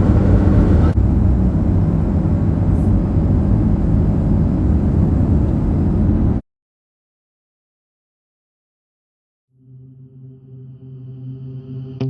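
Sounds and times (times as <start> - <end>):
car driving rumble: 0.0 - 6.4.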